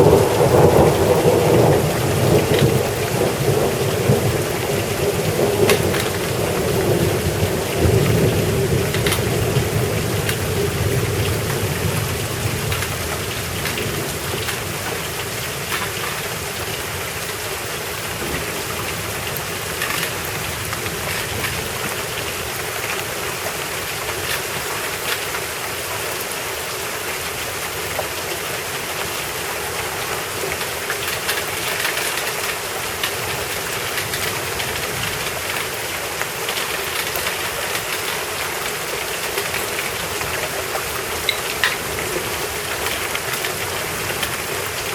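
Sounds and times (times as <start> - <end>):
thunder rumble: 0.0 - 16.9, 17.8 - 22.8
rain pattering on surfaces: 0.0 - 44.9.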